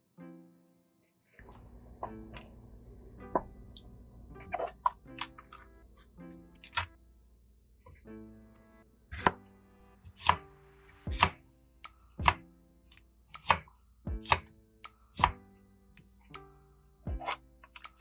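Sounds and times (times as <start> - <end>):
knife chopping on cutting board: 10.1 - 10.5, 11.1 - 12.4, 13.3 - 15.4, 17.1 - 18.0.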